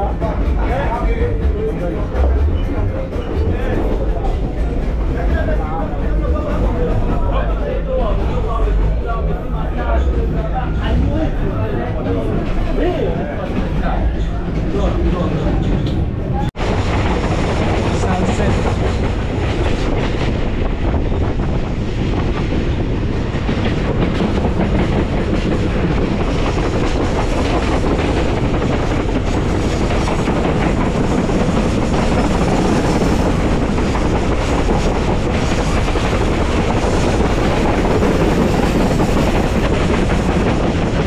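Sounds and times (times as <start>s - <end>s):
train wheels rushing on rail: 0.0s - 41.0s
rail clatter clicks: 11.9s - 41.0s.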